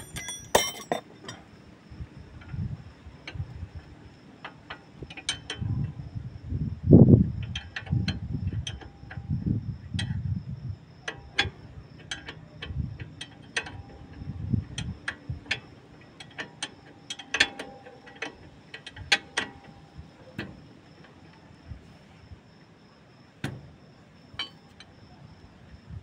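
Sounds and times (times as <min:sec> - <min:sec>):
hand tools clinking on metal: 0:00.0 - 0:01.4, 0:24.4 - 0:24.8.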